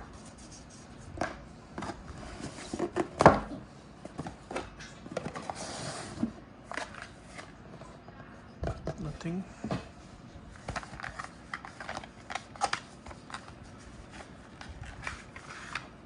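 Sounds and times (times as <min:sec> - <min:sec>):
paper or plastic rustling: 0:10.5 - 0:16.0.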